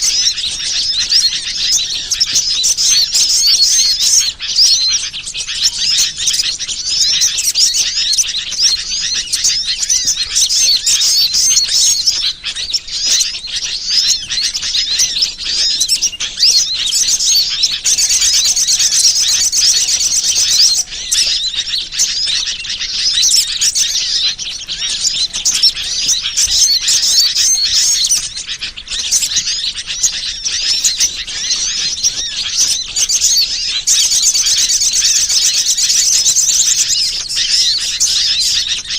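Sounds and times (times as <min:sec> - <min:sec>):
small birds chirping and twittering: 0:00.0 - 0:38.9.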